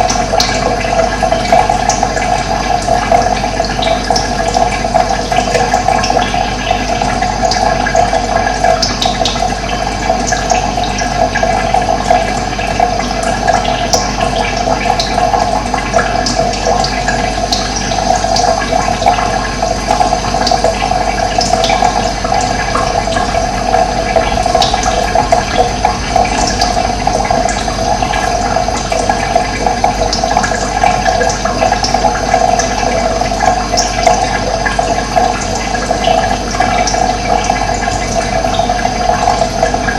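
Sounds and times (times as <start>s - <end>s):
water rushing: 18.6s - 39.9s.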